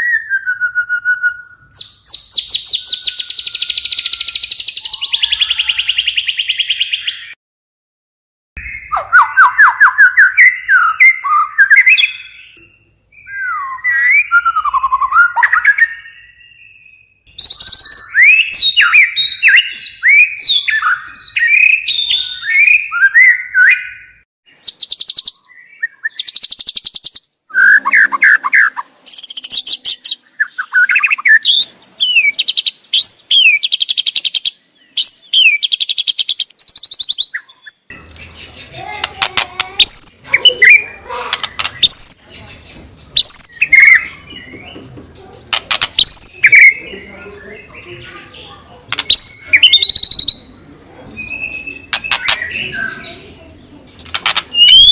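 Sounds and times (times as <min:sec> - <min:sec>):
bird whistling sliding notes: 0:27.5 - 0:29.5
bird rattling clicks: 0:45.5 - 0:46.1, 0:48.9 - 0:49.3, 0:54.0 - 0:54.6.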